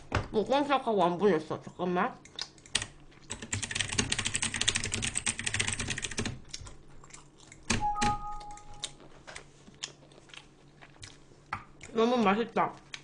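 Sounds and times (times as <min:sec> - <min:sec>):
typing on computer keyboard: 0:02.7 - 0:06.4, 0:07.6 - 0:08.9
two-tone electronic beep: 0:07.8 - 0:08.9.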